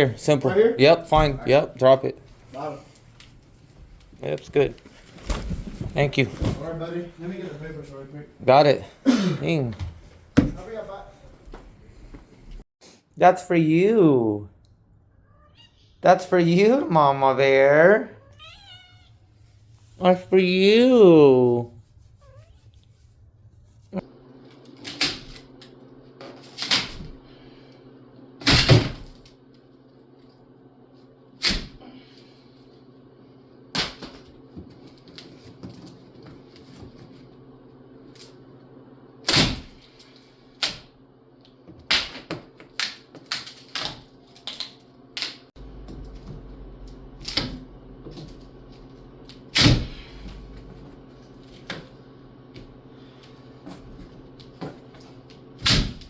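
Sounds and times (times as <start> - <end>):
steady low hum: 43.5 - 56.0.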